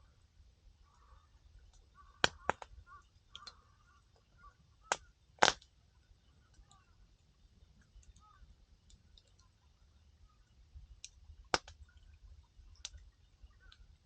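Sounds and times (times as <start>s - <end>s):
wood fire crackling: 1.5s - 4.2s, 4.8s - 9.6s, 10.4s - 14.0s
firewood popping: 1.6s - 3.6s, 4.8s - 5.7s, 10.9s - 14.0s.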